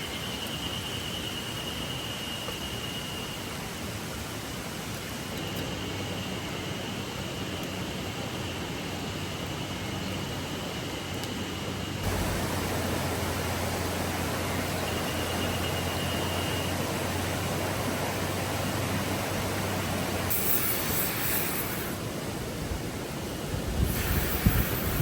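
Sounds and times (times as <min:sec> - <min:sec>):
river water rushing: 0:12.0 - 0:25.0.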